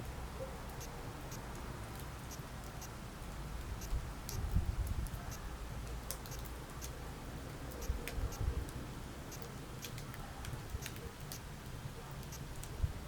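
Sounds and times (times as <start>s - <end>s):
fire crackling and popping: 5.8s - 12.8s.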